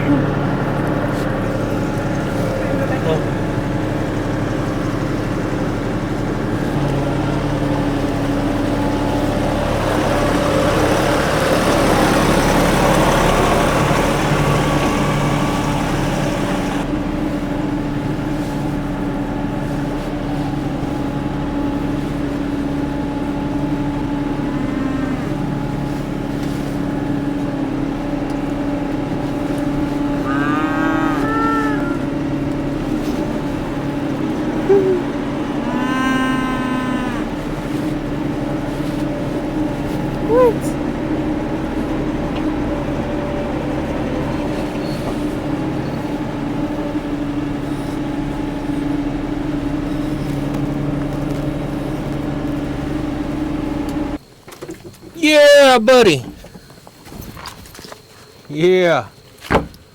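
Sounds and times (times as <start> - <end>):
tractor engine running: 0.0 - 59.9
cattle mooing: 23.7 - 27.2, 29.3 - 38.9, 39.6 - 46.4.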